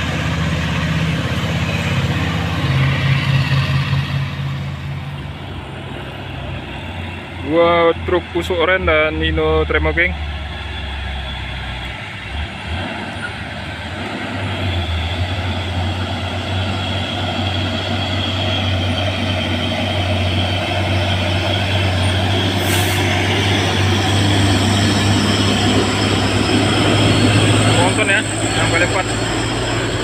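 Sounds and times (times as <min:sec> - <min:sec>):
diesel truck engines droning: 0:00.0 - 0:30.0
short hiss: 0:22.6 - 0:23.1.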